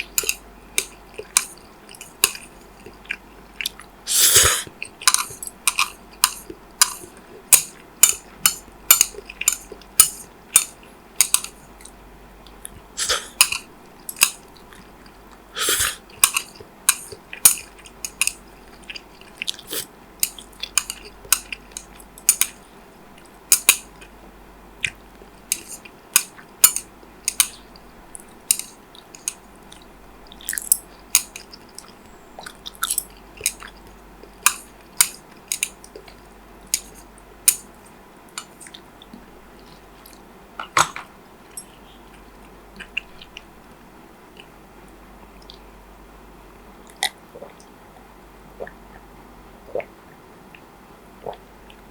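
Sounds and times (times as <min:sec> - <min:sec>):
person chewing food: 0:00.0 - 0:24.2, 0:24.8 - 0:45.7, 0:46.8 - 0:47.8, 0:49.7 - 0:51.9.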